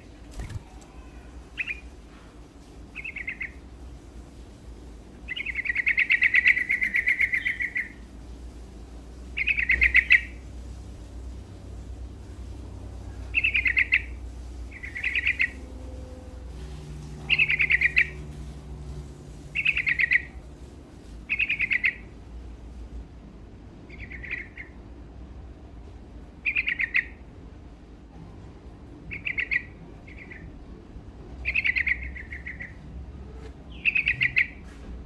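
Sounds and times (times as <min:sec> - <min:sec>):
bird chirping song: 0:00.0 - 0:01.9, 0:02.9 - 0:03.7, 0:05.2 - 0:08.1, 0:09.3 - 0:10.4, 0:13.0 - 0:20.4, 0:21.3 - 0:22.1, 0:23.9 - 0:24.8, 0:26.4 - 0:27.2, 0:29.1 - 0:30.6, 0:31.4 - 0:32.9, 0:33.7 - 0:34.6.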